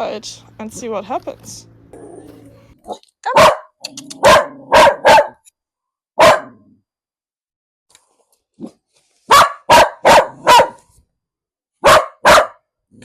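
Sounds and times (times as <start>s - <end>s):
dog barking: 2.9s - 5.5s, 6.2s - 6.7s, 9.3s - 10.9s, 11.8s - 12.7s.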